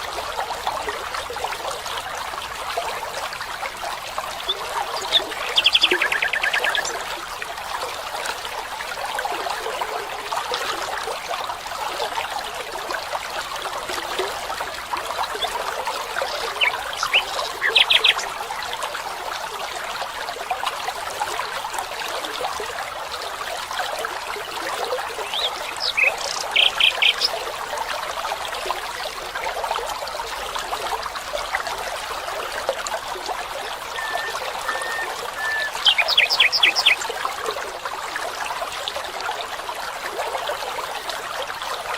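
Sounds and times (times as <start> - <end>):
stream trickling: 0.0 - 41.9
quick high chirps: 34.0 - 36.0.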